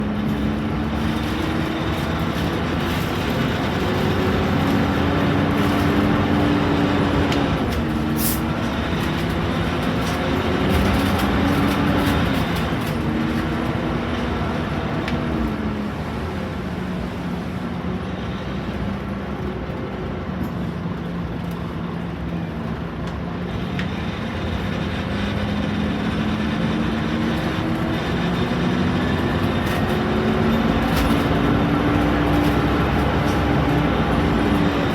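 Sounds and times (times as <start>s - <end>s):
bus diesel engine accelerating: 0.0s - 34.9s.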